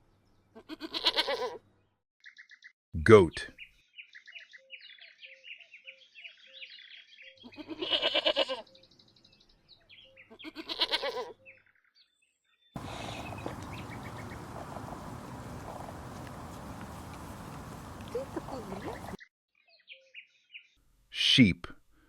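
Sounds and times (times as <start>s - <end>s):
goat bleating: 0.6s - 1.6s, 7.5s - 8.6s, 10.4s - 11.3s, 12.8s - 19.2s
small birds chirping: 12.8s - 19.2s
steady outdoor hiss: 12.8s - 19.2s.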